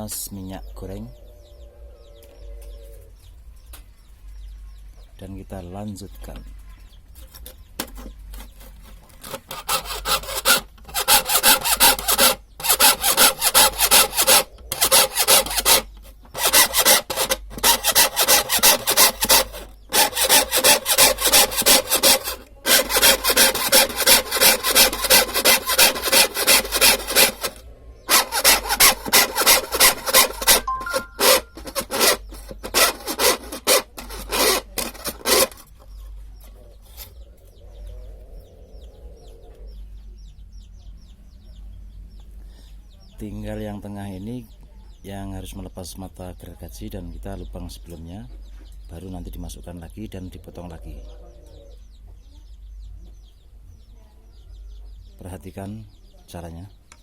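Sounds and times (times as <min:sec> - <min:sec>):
hand saw cutting wood: 0:07.4 - 0:35.8.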